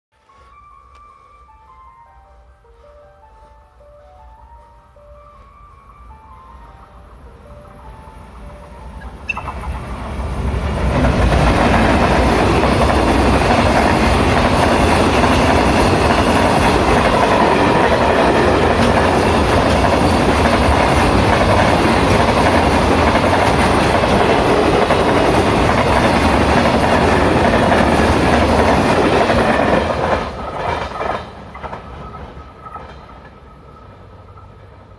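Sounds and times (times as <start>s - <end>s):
freight train passing: 0.2s - 34.9s
wheels rattling on rail: 7.8s - 34.9s.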